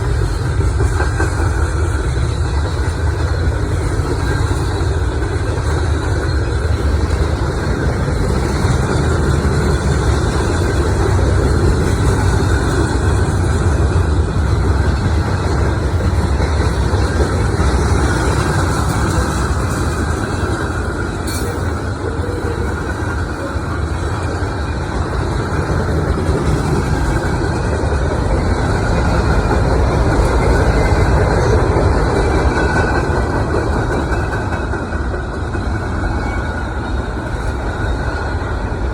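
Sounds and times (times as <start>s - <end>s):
heavy engines rumbling: 0.0s - 38.9s.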